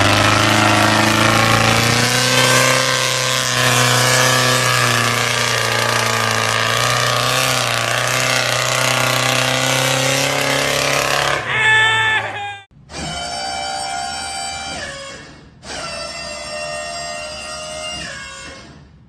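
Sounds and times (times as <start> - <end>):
diesel truck engine running: 0.0 - 12.3.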